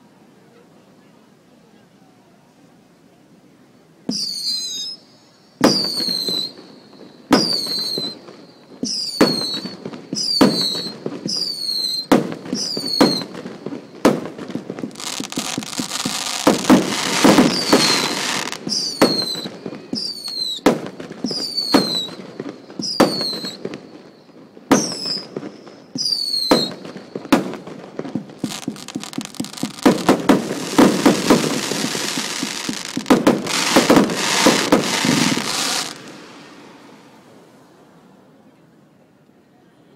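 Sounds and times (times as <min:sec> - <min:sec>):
fireworks crackling and hissing: 0:04.0 - 0:38.4
falling whistle tone: 0:04.1 - 0:13.3, 0:17.0 - 0:20.6, 0:21.2 - 0:22.2, 0:26.0 - 0:26.8
fireworks banging: 0:05.6 - 0:37.2.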